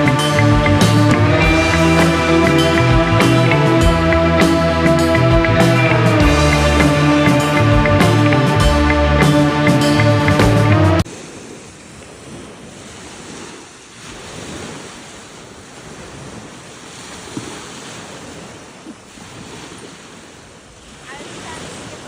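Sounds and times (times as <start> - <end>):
background music: 0.0 - 11.0
small waves washing onto beach: 11.0 - 22.0
wind rumbling on microphone: 11.0 - 22.0.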